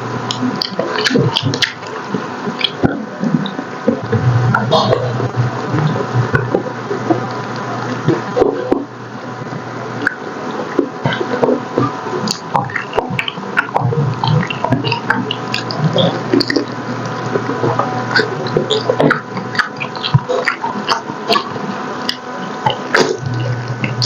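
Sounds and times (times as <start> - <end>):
wet chewing and lip-smacking: 0.3 - 3.6, 10.8 - 24.0.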